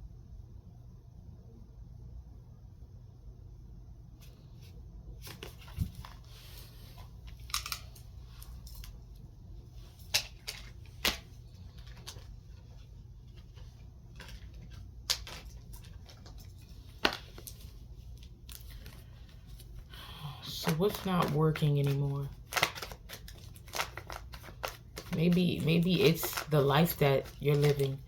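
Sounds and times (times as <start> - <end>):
cards rustling: 4.2 - 28.0
cards snapping down: 10.0 - 12.2.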